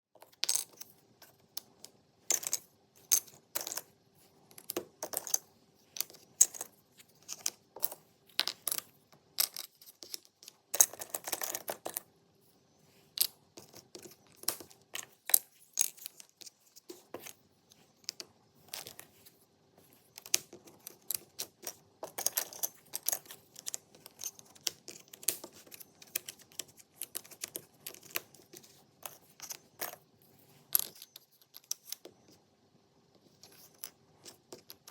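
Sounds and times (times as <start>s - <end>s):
faint steady hum: 0.2s - 34.9s
puzzle pieces clicking and tapping: 6.0s - 12.0s, 20.1s - 30.0s.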